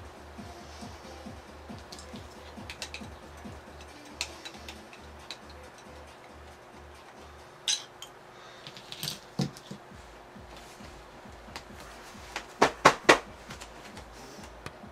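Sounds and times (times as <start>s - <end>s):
metal parts clinking on hard surface: 7.6s - 9.4s.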